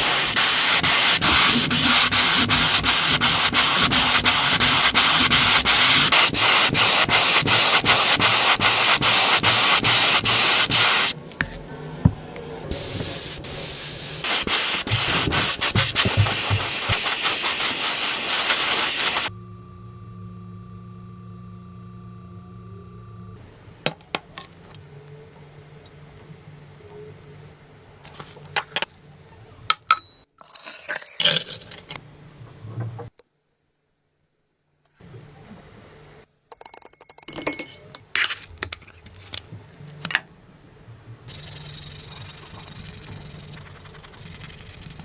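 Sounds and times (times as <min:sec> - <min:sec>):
quiet machine hum: 0:19.3 - 0:30.3.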